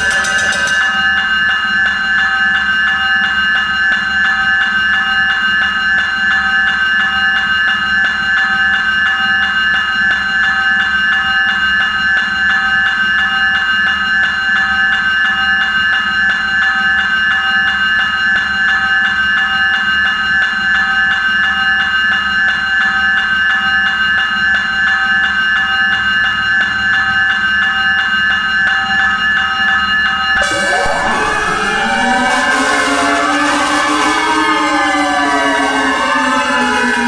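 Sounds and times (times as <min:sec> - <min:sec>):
fire truck air horn blast: 0:30.4 - 0:37.0
pulsing faint tone: 0:30.4 - 0:37.0.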